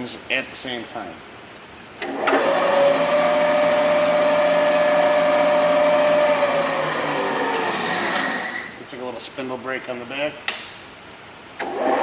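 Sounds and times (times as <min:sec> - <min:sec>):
grinder motor whining: 0:02.2 - 0:08.8.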